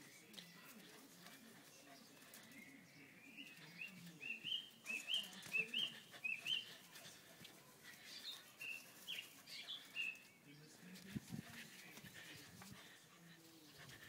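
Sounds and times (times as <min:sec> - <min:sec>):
bird chirping: 0:00.0 - 0:07.0, 0:08.0 - 0:10.7.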